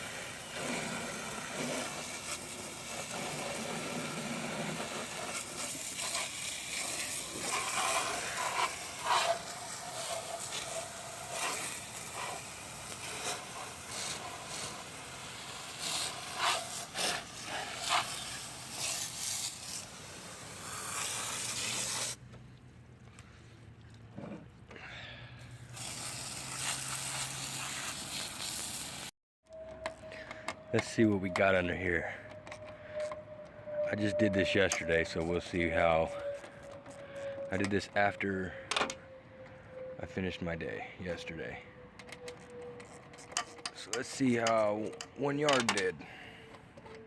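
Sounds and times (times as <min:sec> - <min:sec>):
rain hissing: 0:00.0 - 0:22.2, 0:25.6 - 0:29.1.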